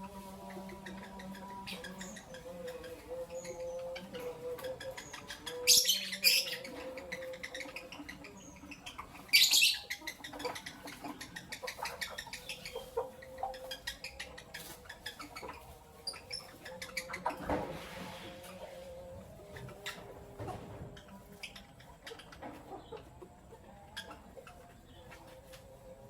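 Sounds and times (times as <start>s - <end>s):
light bird calls: 0.0s - 20.1s
lovebirds chirping shrilly: 4.8s - 17.3s.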